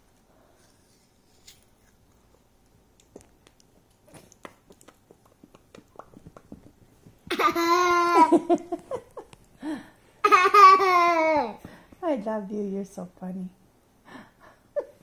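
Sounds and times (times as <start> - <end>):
child chewing an apple: 0.5 - 6.9.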